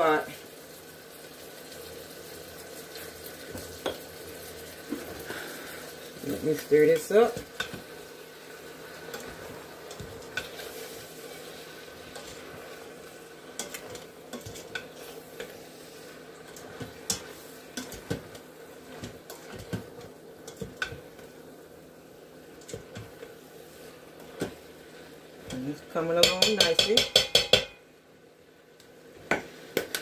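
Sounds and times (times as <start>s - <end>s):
low sizzle: 0.0s - 30.0s
spoon stirring food in a pot: 6.2s - 21.5s, 22.5s - 27.8s
utensil scraping and tapping pot: 6.5s - 7.9s, 9.1s - 10.8s, 12.1s - 12.6s, 13.6s - 15.6s, 16.5s - 21.3s, 25.4s - 27.8s.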